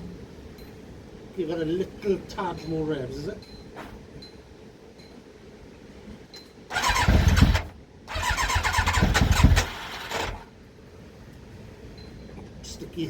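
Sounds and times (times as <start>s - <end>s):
motorcycle electric starter cranking: 6.7s - 10.5s.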